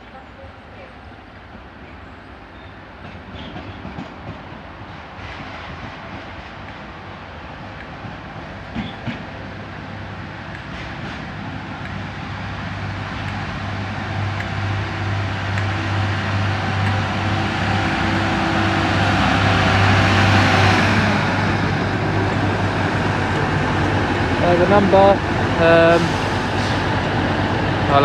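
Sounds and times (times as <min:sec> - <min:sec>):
diesel engine humming: 0:11.7 - 0:28.0.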